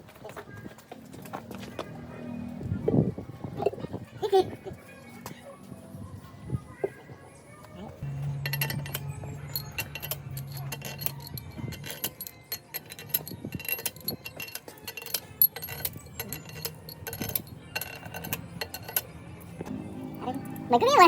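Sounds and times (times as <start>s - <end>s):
metal tools clinking on metal: 8.0s - 19.8s.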